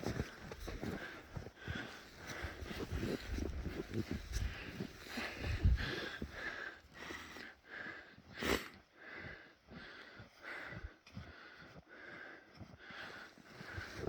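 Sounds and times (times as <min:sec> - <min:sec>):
footsteps in snow: 0:00.0 - 0:06.7, 0:12.8 - 0:14.0.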